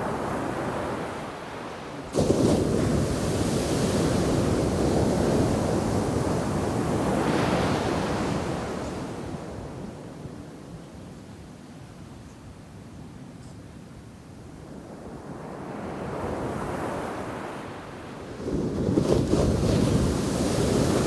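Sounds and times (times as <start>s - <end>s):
wave crashing on beach: 0.0s - 9.1s, 18.9s - 21.0s
surf rushing: 1.6s - 8.5s, 19.0s - 21.0s
wind on microphone: 18.4s - 21.0s.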